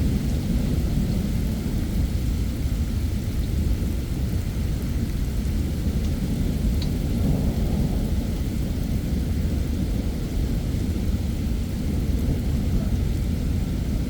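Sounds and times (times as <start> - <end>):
thunder rumbling: 5.0 - 14.0.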